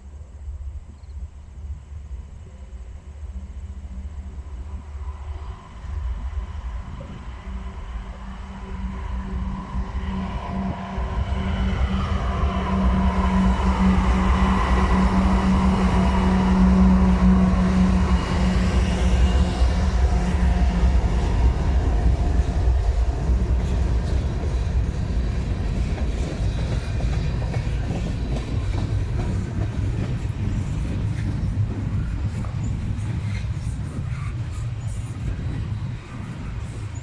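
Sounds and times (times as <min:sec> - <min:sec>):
diesel locomotive engine drone: 0:00.0 - 0:37.0
train wheels on rails: 0:01.9 - 0:37.0.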